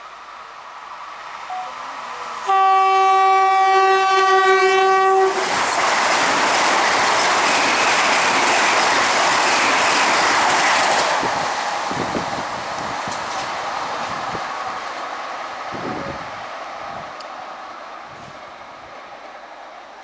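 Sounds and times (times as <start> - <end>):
train horn blast: 1.5 - 5.5
wheels clattering on rails: 5.4 - 15.1.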